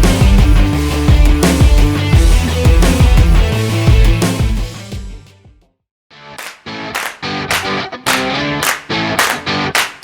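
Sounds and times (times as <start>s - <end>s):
rock music with electric guitar: 0.0s - 5.3s, 6.2s - 10.0s
guitar strumming chords: 6.1s - 9.8s.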